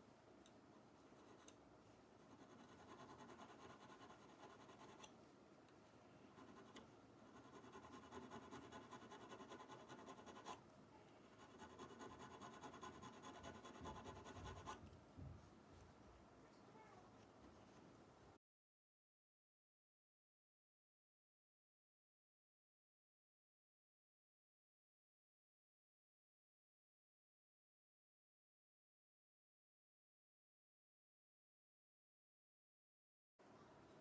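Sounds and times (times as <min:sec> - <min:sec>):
hand tool scratching a surface: 0:06.4 - 0:10.6, 0:11.4 - 0:14.8.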